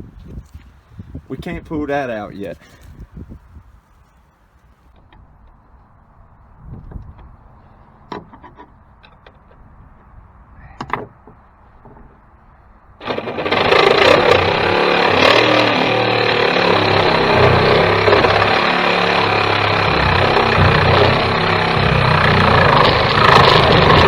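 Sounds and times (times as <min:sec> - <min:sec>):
reciprocating saw cutting: 0:13.0 - 0:24.0.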